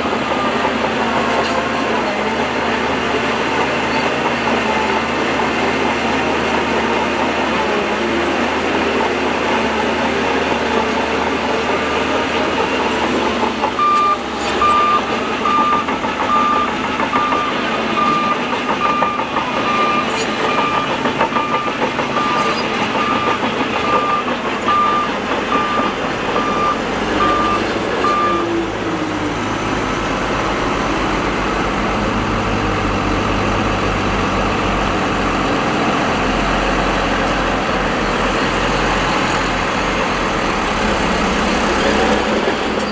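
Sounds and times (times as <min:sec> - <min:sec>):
reversing alarm beeping: 0:00.0 - 0:05.1, 0:10.2 - 0:29.1
heavy machinery engines running: 0:00.0 - 0:42.9.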